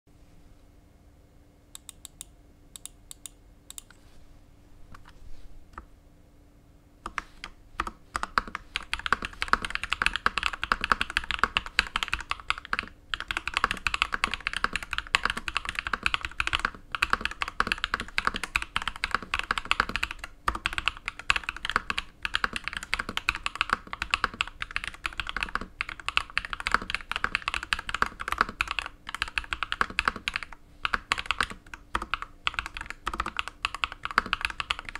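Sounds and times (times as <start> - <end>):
typing on mechanical keyboard: 7.1 - 34.9.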